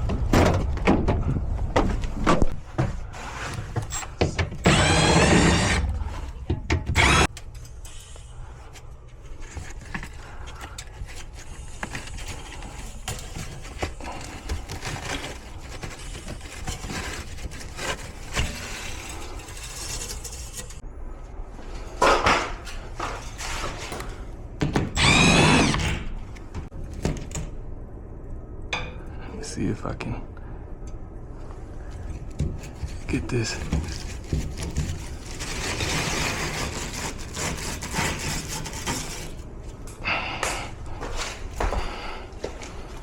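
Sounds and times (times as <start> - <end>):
rustling and handling of panels: 0.0 - 7.7, 8.5 - 20.8, 21.6 - 24.9, 31.4 - 43.0
cordless drill whining: 4.6 - 6.0, 6.9 - 7.3, 25.0 - 26.0.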